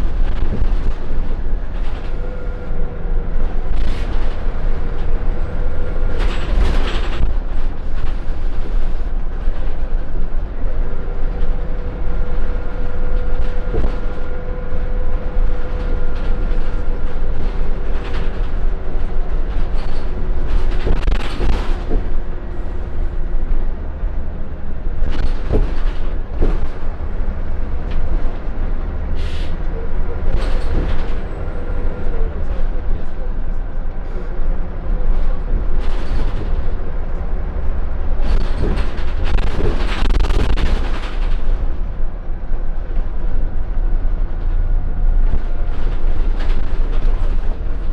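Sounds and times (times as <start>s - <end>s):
bus body rattling and knocking: 0.0s - 47.9s
bus engine and road rumble: 0.0s - 47.9s
engine whine: 0.0s - 47.9s.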